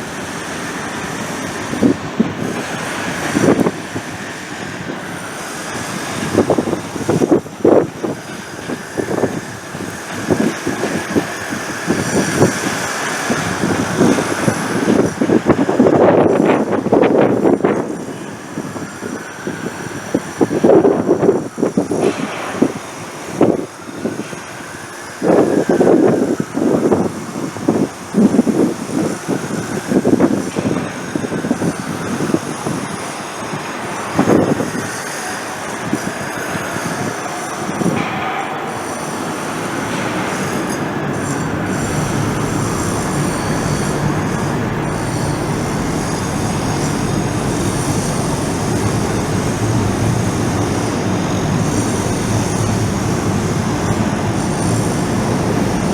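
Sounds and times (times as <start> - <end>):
faint high whine: 17.6 - 55.9
train wheels rumbling: 30.6 - 55.9.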